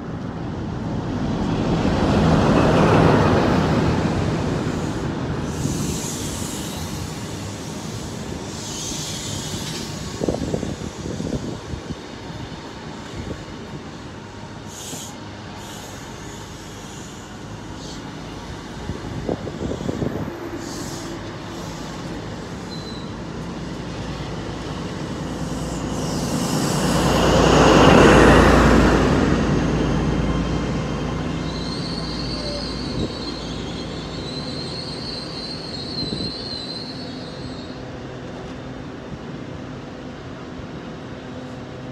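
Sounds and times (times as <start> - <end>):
diesel train passing: 0.0 - 41.9
high wavering squeal: 18.8 - 23.3, 31.3 - 37.8.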